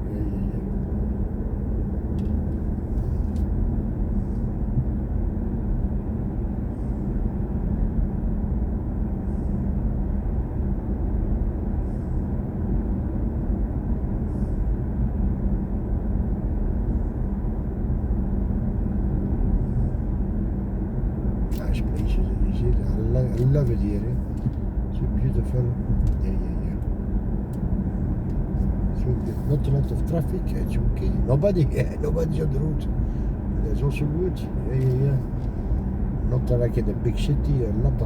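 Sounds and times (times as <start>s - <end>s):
road and tyre rumble in car: 0.0s - 38.0s.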